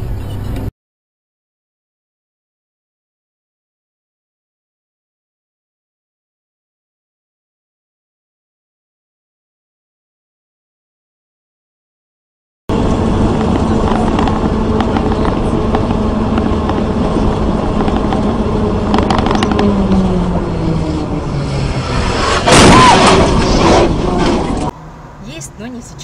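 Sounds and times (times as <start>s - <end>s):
road and wind noise: 0.0s - 0.7s, 12.7s - 26.0s
vehicle engine running: 12.7s - 26.0s
loud noisy burst: 21.4s - 24.7s.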